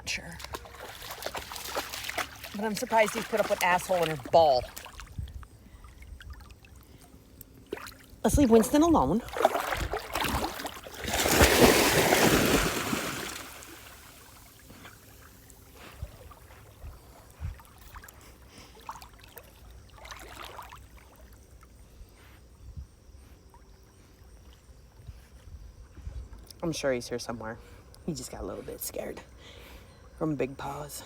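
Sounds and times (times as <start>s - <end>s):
water splashing: 0.2s - 21.3s
river water flowing: 0.4s - 5.1s, 6.4s - 15.6s.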